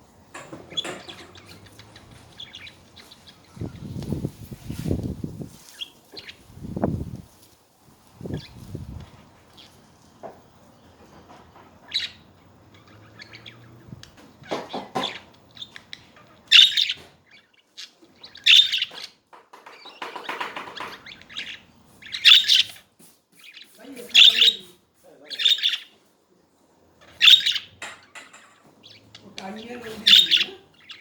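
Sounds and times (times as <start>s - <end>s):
budgerigars chirping: 0.5s - 4.2s, 5.7s - 6.4s, 11.8s - 22.8s, 23.4s - 26.0s, 27.0s - 31.0s.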